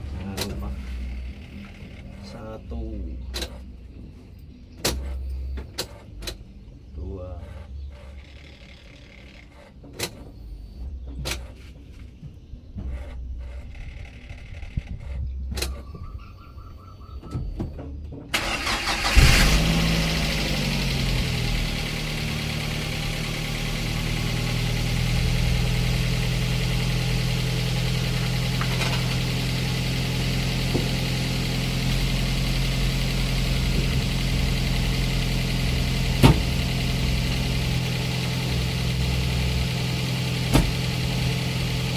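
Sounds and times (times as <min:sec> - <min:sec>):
engine starting and idling: 0:18.3 - 0:41.9.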